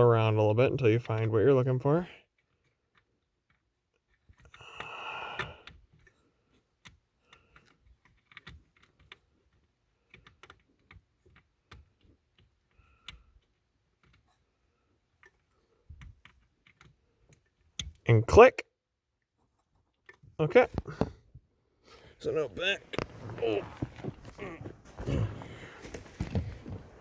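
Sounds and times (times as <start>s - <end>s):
hand rustling among wiring: 22.2s - 27.0s.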